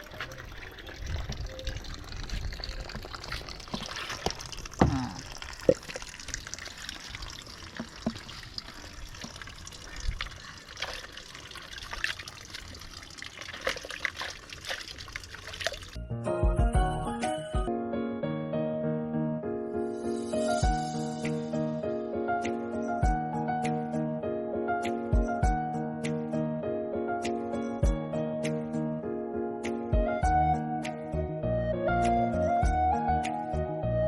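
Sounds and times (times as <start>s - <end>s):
water splashing and trickling: 0.0s - 16.1s.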